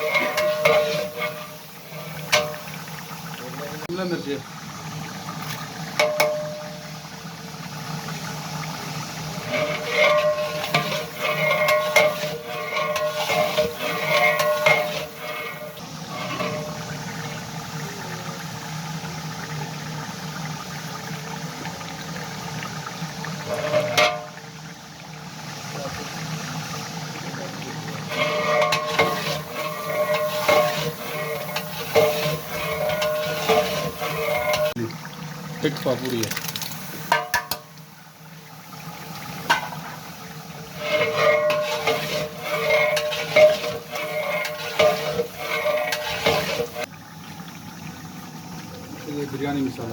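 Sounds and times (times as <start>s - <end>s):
metal ladle scraping a pot: 0.0s - 3.6s, 5.4s - 7.0s, 8.2s - 17.5s, 23.3s - 24.4s, 28.0s - 34.9s, 36.0s - 37.7s, 39.1s - 46.9s.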